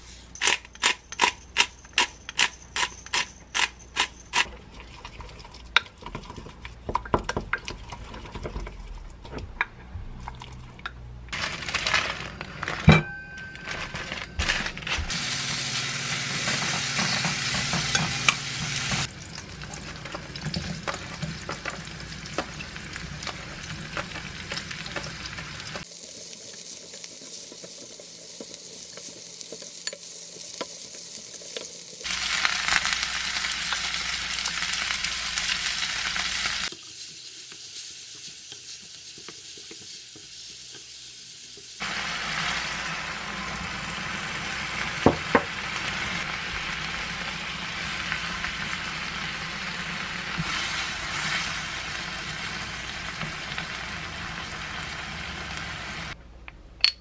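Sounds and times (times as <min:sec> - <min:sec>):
meat and vegetables sizzling: 0:13.6 - 0:56.2.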